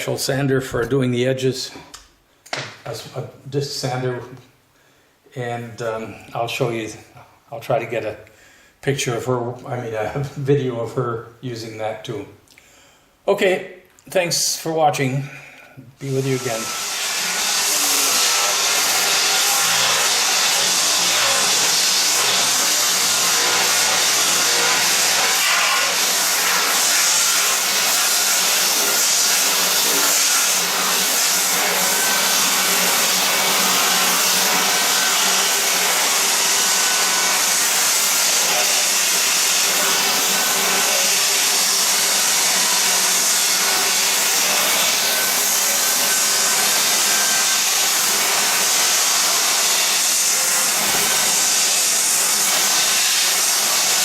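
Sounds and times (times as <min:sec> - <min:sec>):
floor sander grinding wood: 0:16.0 - 0:54.0.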